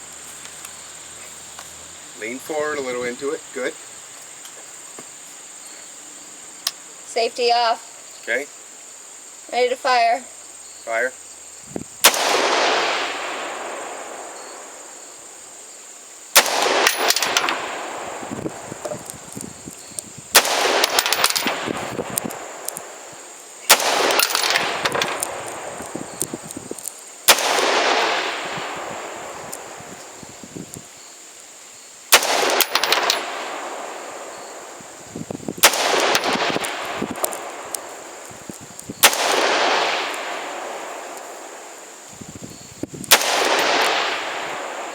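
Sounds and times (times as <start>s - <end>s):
rifle shots: 12.0s - 14.8s, 16.4s - 19.2s, 20.3s - 23.1s, 23.7s - 26.4s, 27.3s - 29.9s, 32.1s - 34.8s, 35.6s - 38.3s, 39.0s - 41.7s, 43.1s - 44.9s
rolling echo: 35.6s - 41.8s.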